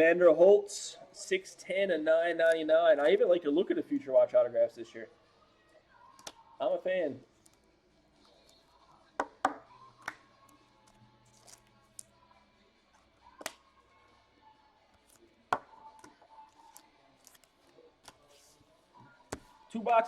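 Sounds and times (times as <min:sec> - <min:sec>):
card handling noise: 0:14.9 - 0:18.6
cards tapping and clicking: 0:15.0 - 0:18.4.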